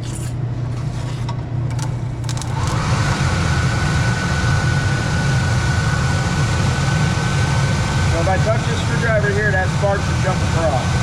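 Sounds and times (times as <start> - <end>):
pressure washer humming: 2.2 - 10.4
burner rushing with whine: 2.2 - 11.0.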